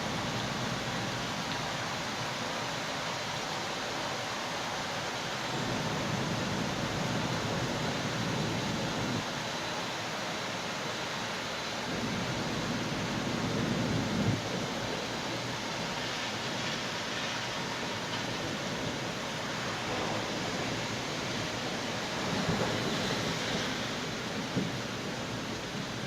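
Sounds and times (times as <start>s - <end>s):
steady rain hiss: 0.0s - 26.0s
low rumble of thunder: 11.7s - 26.0s.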